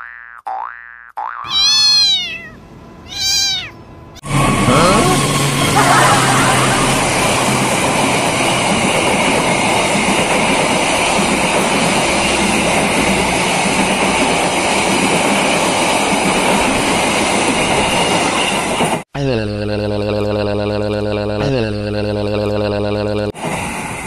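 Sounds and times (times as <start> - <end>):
train wheels running on rails: 6.8 - 19.0, 23.4 - 24.0.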